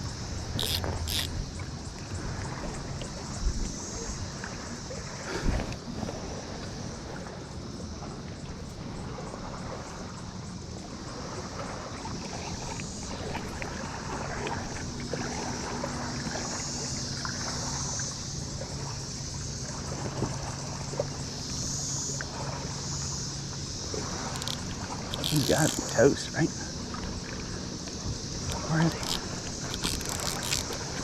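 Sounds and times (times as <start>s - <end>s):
wind noise on microphone: 0.0s - 2.5s
cicada chorus drone: 0.0s - 31.0s
water washing around kayak: 0.0s - 31.0s.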